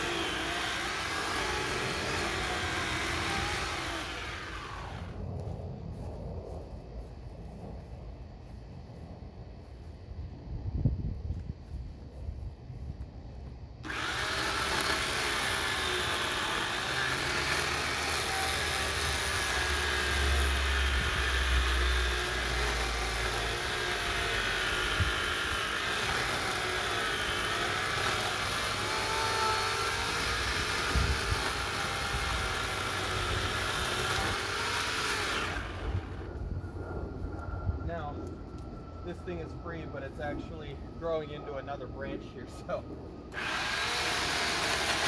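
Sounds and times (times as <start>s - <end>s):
electric chainsaw cutting wood: 0.0s - 5.2s, 13.8s - 36.4s, 43.3s - 45.0s.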